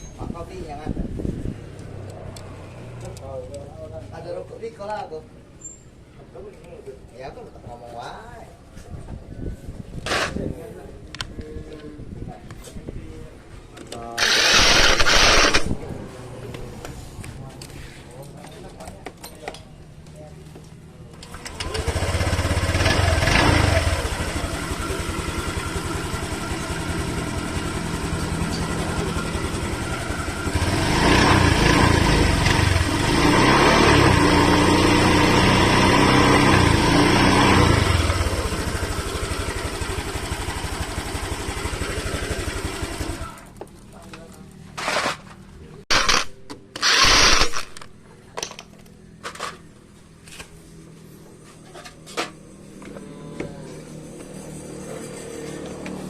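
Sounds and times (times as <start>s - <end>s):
scooter engine revving: 14.2s - 15.8s, 21.3s - 43.6s, 45.9s - 47.7s.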